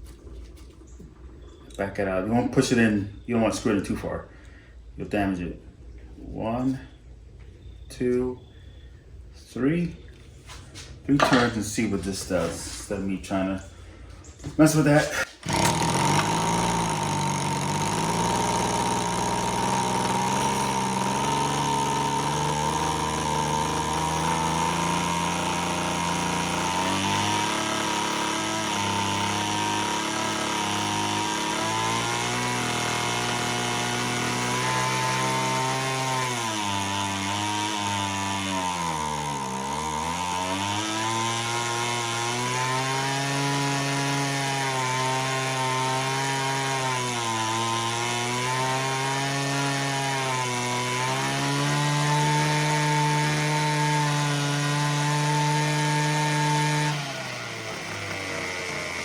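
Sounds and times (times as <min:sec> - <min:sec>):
hedge trimmer engine running: 0:11.2 - 0:13.8, 0:14.6 - 0:59.0.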